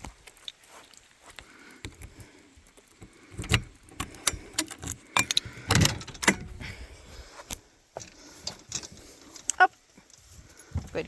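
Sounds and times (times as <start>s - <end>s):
door and gear clicks and rattles: 3.3s - 6.6s.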